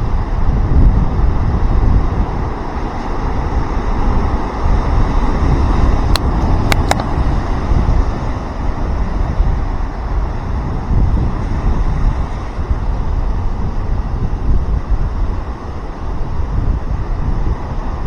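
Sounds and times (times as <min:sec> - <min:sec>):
ocean surf rushing: 0:00.0 - 0:18.0
wind buffeting microphone: 0:00.0 - 0:18.0.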